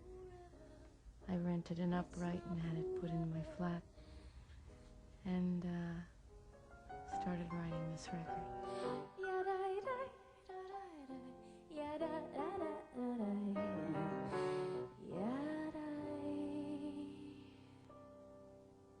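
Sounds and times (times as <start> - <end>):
woman singing: 0.0 - 4.0, 7.1 - 17.8.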